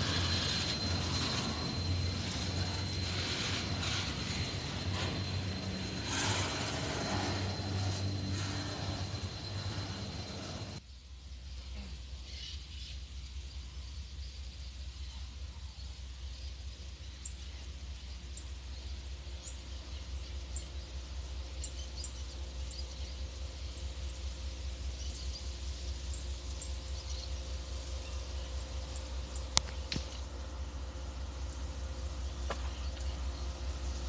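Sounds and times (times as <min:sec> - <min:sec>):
low rumble: 0:00.0 - 0:10.8.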